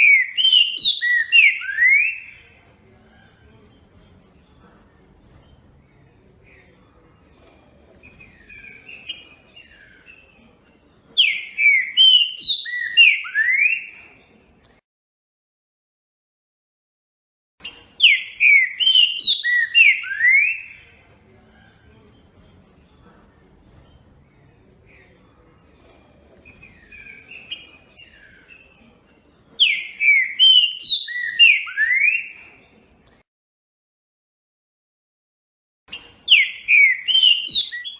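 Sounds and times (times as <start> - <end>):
songbird twittering chirps: 0.0 - 2.5, 8.0 - 10.4, 11.2 - 14.0, 26.5 - 28.9, 29.6 - 32.7, 35.9 - 37.9
songbird chirps: 0.0 - 14.8, 17.6 - 33.2, 35.9 - 37.9
songbird whistled notes: 26.6 - 28.7, 35.9 - 37.9.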